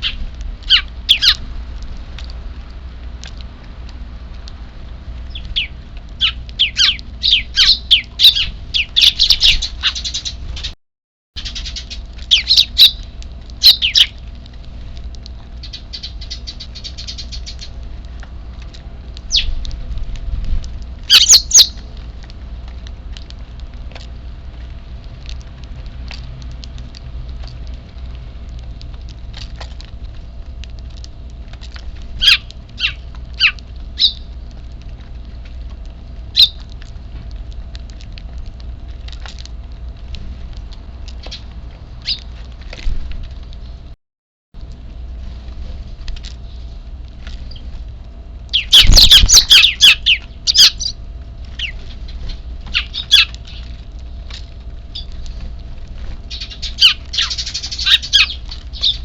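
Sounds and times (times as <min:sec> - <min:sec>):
sparrows chirping: 0:00.0 - 0:01.4, 0:05.3 - 0:10.7, 0:11.4 - 0:14.2, 0:15.6 - 0:17.8, 0:19.3 - 0:19.6, 0:21.1 - 0:21.8, 0:32.2 - 0:34.3, 0:36.4 - 0:36.6, 0:48.5 - 0:51.0, 0:51.6 - 0:53.7, 0:54.9 - 0:55.2, 0:56.3 - 0:59.0
low background hum: 0:00.0 - 0:10.8, 0:11.4 - 0:44.0, 0:44.6 - 0:59.0.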